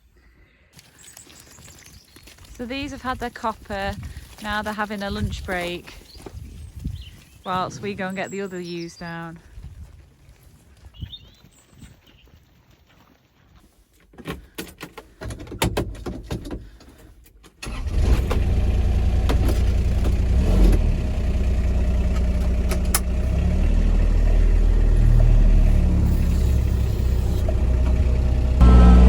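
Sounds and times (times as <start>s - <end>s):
vehicle engine starting and running: 17.6s - 29.0s.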